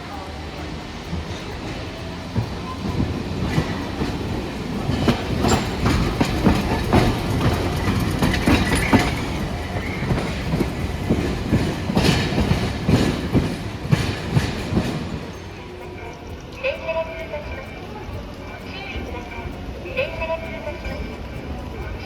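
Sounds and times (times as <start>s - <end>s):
streetcar wheels clattering: 0.0s - 22.0s.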